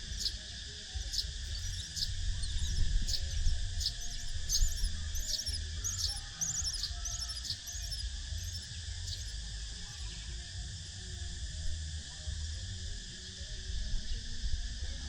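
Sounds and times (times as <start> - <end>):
nestling birds chirping: 0.0 - 0.4, 1.0 - 9.3
steady high hum: 0.0 - 15.0
low rumble: 1.0 - 10.6.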